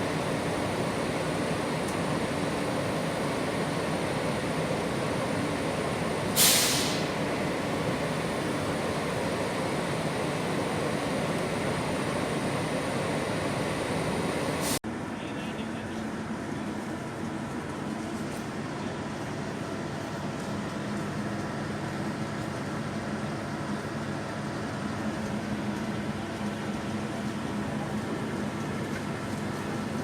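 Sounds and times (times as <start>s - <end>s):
subway train rumbling: 0.0s - 30.0s
loud hiss: 6.2s - 7.5s.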